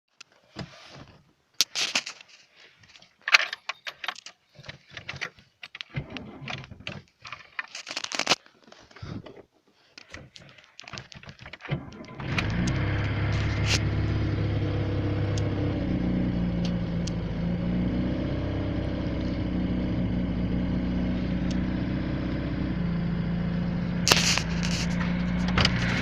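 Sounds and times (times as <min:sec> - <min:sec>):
handling clicks and knocks: 0:00.2 - 0:11.8.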